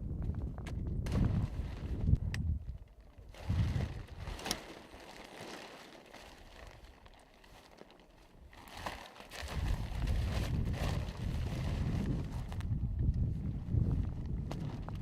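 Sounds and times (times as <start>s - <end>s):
wind buffeting microphone: 0.0s - 4.4s, 9.4s - 15.0s.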